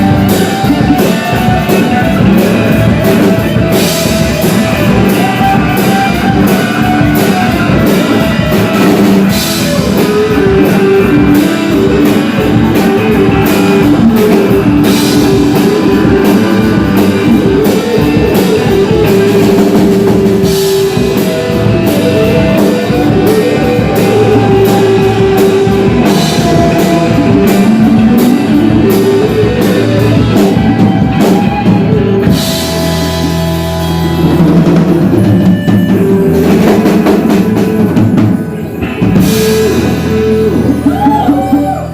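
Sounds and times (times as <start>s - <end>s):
drum kit beat: 0.0s - 41.9s
guitar melody: 0.0s - 41.9s
loud rock music: 0.0s - 41.9s.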